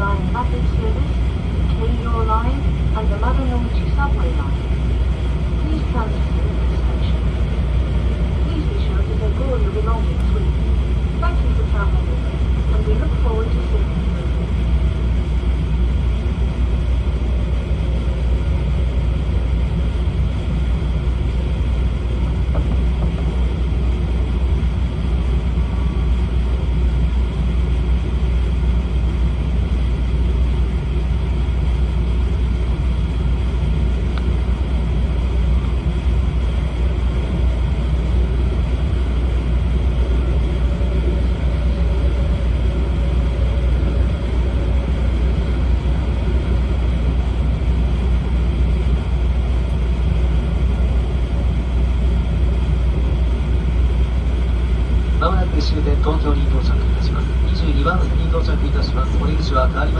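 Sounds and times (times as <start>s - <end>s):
train rumble from inside: 0.0s - 59.9s.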